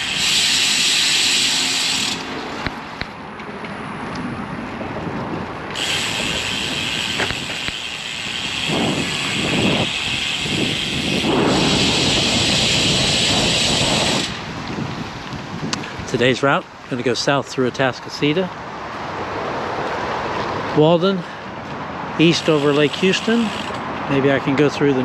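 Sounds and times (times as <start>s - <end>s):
road hiss: 0.0s - 3.2s, 5.7s - 24.6s
low wind buffeting: 0.0s - 23.0s
wind noise on microphone: 2.0s - 17.1s.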